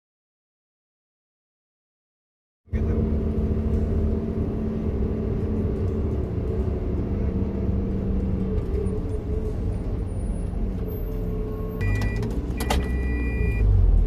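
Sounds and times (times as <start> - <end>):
low mechanical rumble with hum: 2.8 - 14.0.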